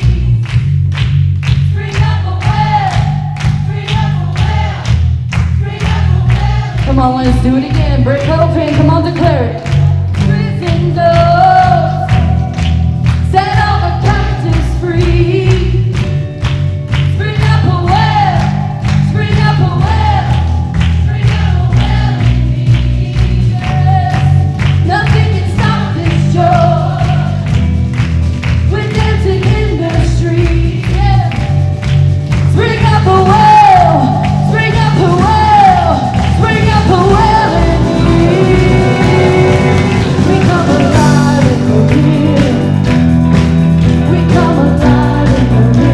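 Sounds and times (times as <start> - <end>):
bass: 0.0 - 45.9
band singing praise song: 1.6 - 16.0, 17.0 - 27.7, 32.3 - 45.9
steady drum beat: 17.0 - 45.9.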